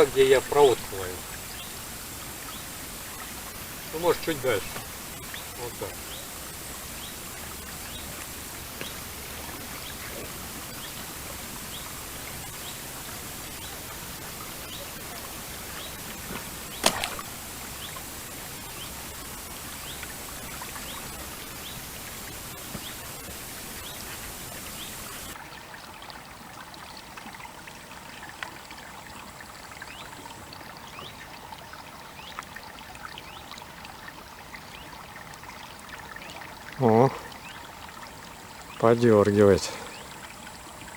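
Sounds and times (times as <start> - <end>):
river water rushing: 0.0 - 26.7
faint small ticks: 7.0 - 9.0
sharp click: 16.8 - 17.2.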